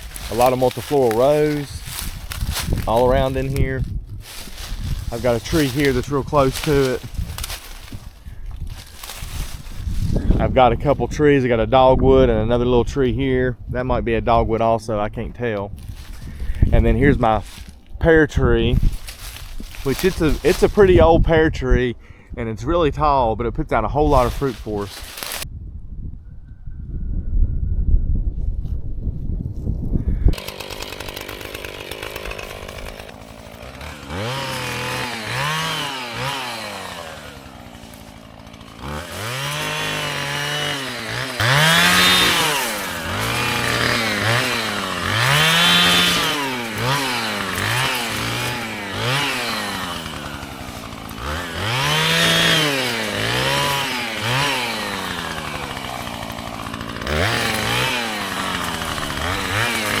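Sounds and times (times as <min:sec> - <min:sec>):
chainsaw revving: 0:00.0 - 0:10.5, 0:15.8 - 0:17.8, 0:18.8 - 0:21.0, 0:24.1 - 0:25.4, 0:30.3 - 1:00.0.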